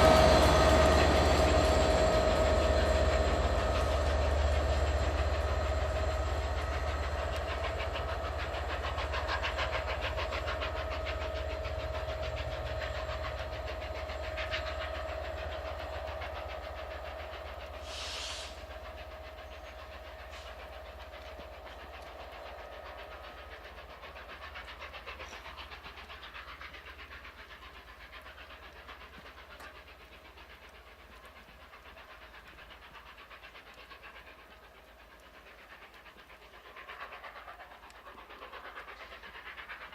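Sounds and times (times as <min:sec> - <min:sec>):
steam locomotive pulling away: 0:00.0 - 0:39.9
short steam hiss: 0:17.5 - 0:23.9.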